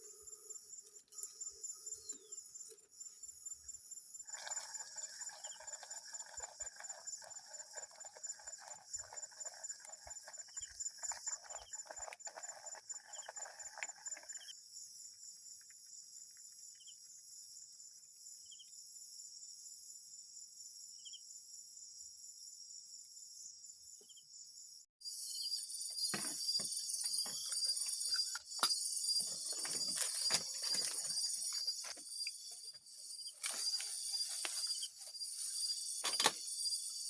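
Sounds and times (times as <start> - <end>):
crickets and insects trilling: 0.0 - 17.0, 25.0 - 37.0.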